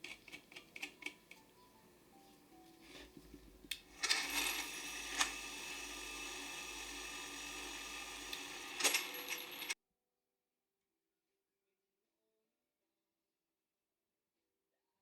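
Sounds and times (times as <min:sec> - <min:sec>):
electric grinder whining: 0:04.0 - 0:09.8.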